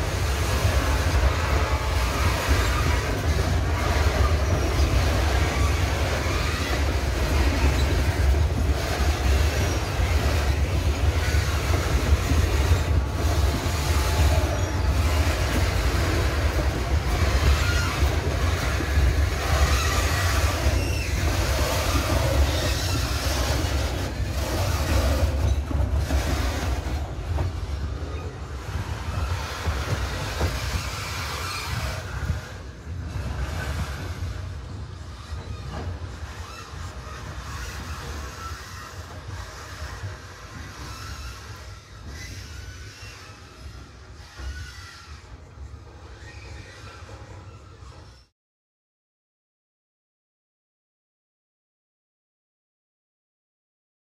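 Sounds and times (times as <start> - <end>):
freight train rumbling past: 0.0 - 48.2
wheel squeals: 0.0 - 48.3.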